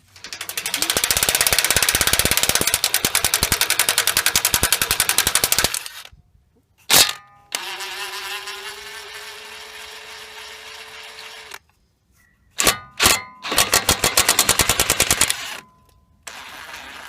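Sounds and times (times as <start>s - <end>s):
impact wrench spinning whir: 0.3s - 6.1s, 6.9s - 11.6s, 12.6s - 17.0s
sharp metallic clank: 6.9s - 7.5s.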